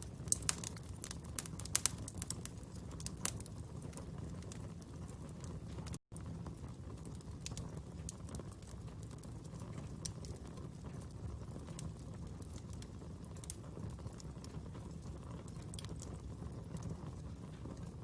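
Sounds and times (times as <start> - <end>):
low rumble of flames: 0.0 - 18.0
wood fire crackling: 0.0 - 18.0.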